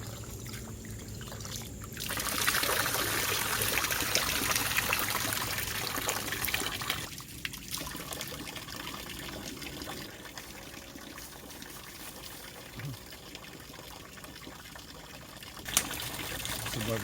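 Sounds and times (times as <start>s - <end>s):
water pouring and trickling: 0.0s - 17.0s.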